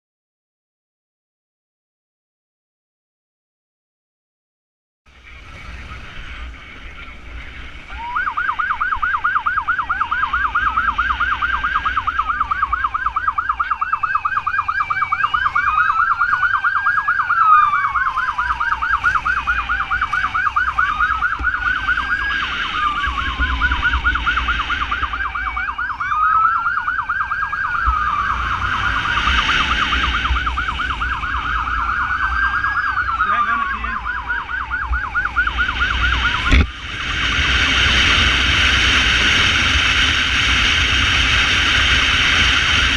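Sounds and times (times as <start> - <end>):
engine and wind rumble: 5.1 - 42.9
siren warbling and wailing: 5.3 - 38.6.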